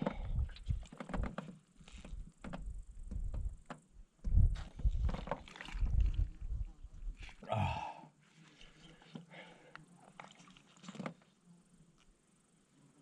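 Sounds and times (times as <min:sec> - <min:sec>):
paddle knocking on canoe: 0:02.4 - 0:06.1.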